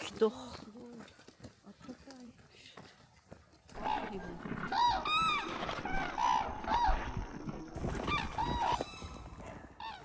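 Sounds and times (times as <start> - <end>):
cranes honking calls: 3.8 - 10.0.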